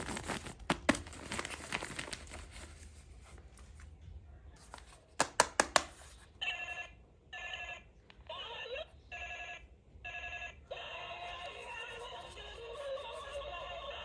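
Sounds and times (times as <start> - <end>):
electronic toy ringing tones: 6.4 - 12.0.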